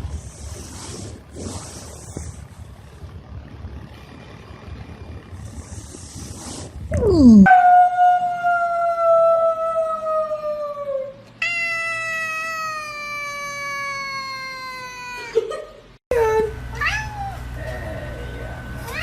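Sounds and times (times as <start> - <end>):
cat yowling: 11.0 - 15.3.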